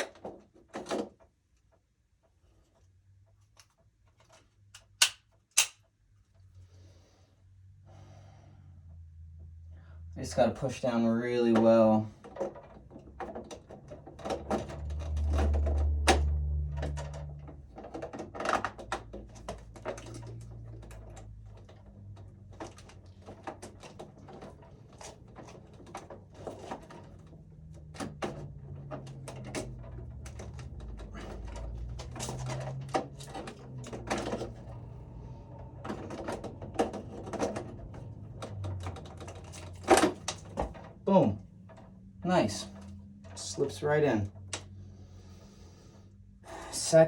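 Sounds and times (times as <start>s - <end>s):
circuit breaker clicks and knocks: 4.8s - 5.8s.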